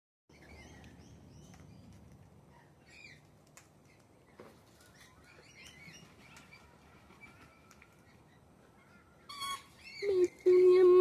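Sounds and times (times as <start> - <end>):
birds chirping faintly: 0.3 - 11.0.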